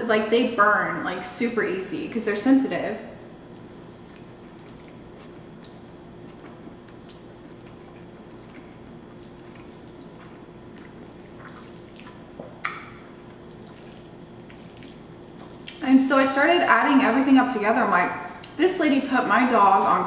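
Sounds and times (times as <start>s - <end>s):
faint steady hum: 0.0s - 20.0s
wet chewing mouth sounds: 3.4s - 15.8s
mouth smacks and clicks: 3.6s - 13.0s.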